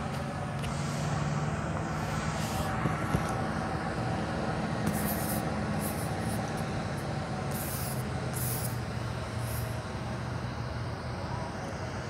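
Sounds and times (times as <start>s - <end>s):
train rumbling: 0.0s - 12.0s
short hissing bursts: 1.9s - 2.8s, 4.9s - 6.4s, 7.5s - 8.8s, 9.4s - 9.8s.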